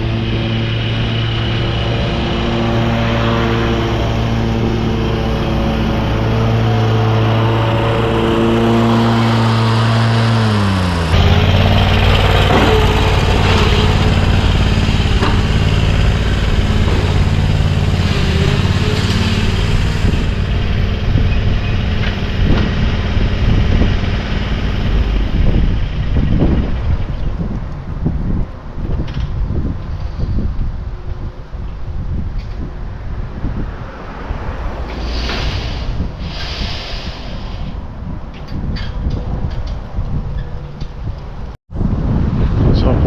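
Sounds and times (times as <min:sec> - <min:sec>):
riding lawn mower engine: 0:00.0 - 0:31.8.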